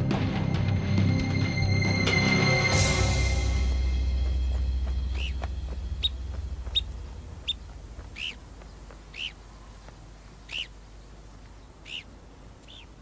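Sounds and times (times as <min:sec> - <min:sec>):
low background music: 0:00.0 - 0:09.4
bird calling: 0:04.2 - 0:13.0.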